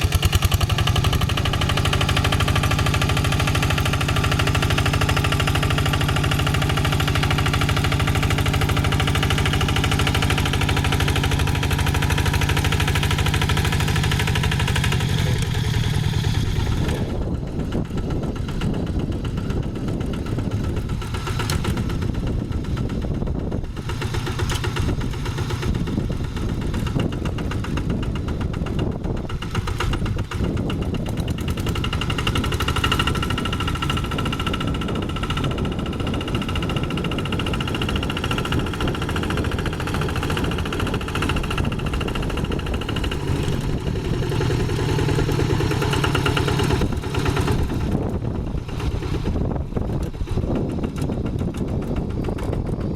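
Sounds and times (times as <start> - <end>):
diesel tractor engine running: 0.0 - 52.9.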